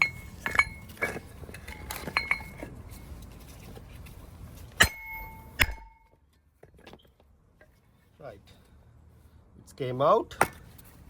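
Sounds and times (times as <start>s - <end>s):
hammer striking metal: 4.8s - 6.1s.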